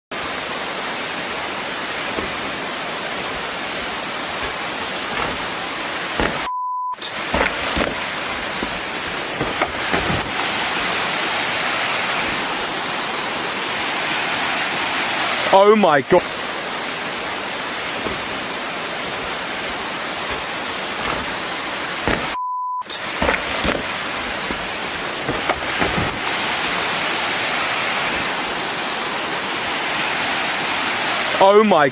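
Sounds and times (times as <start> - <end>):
waterfall rushing: 0.1 - 31.9
dull knocks: 2.1 - 2.5, 3.2 - 6.5, 7.3 - 11.1, 18.0 - 18.4, 20.2 - 22.4, 23.2 - 26.5
short steady beep: 6.4 - 7.0, 22.3 - 22.9.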